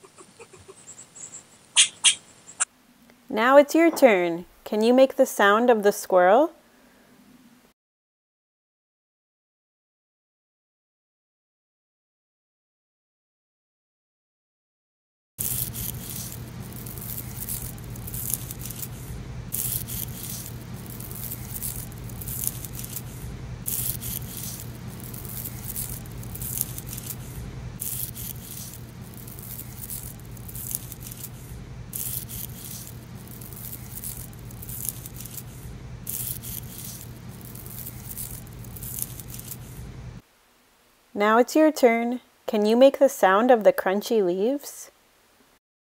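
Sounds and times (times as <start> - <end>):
dry leaves crunching: 15.4 - 39.8
steady low hum: 15.4 - 40.2.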